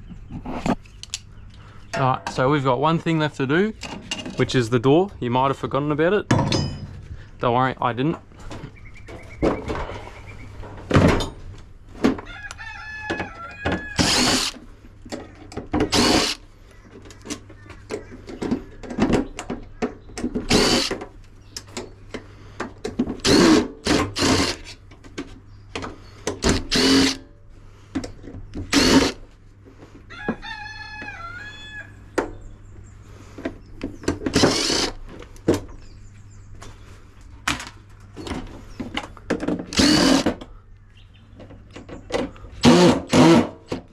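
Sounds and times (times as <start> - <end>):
metal clanks: 6.3 - 7.0
rooster crowing: 12.2 - 14.4, 30.1 - 32.0
power drill bursts: 14.0 - 14.6, 15.9 - 16.4, 20.5 - 21.0, 23.2 - 24.8, 26.4 - 27.2, 28.7 - 29.2, 34.3 - 35.0, 39.7 - 40.3, 42.6 - 43.5.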